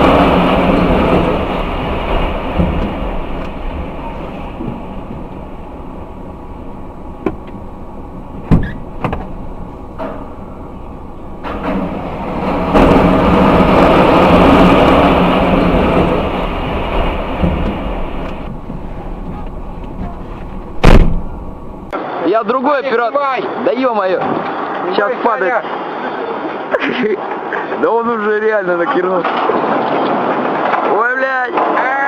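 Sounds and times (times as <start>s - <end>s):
sharp knocks: 0.0s - 5.6s, 7.2s - 7.6s, 8.3s - 9.4s, 15.2s - 21.5s
heavy machinery rumble: 0.0s - 22.0s
loud rushing noise: 0.0s - 26.2s.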